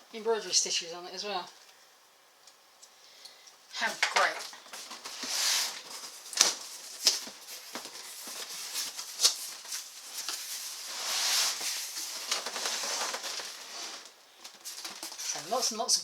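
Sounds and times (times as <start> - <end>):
packaging rustling: 3.9 - 15.7.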